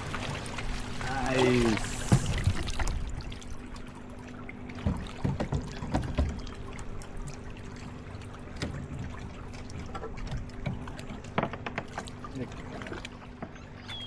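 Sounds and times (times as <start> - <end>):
water trickling and splashing: 0.0 - 14.0
knocks against kayak hull: 4.8 - 6.4.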